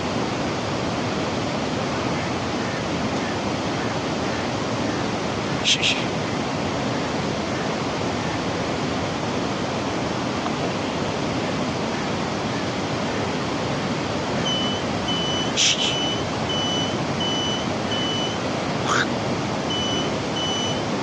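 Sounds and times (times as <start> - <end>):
steady rushing noise: 0.0 - 21.0
short electronic beeps: 14.4 - 18.4, 19.7 - 20.9.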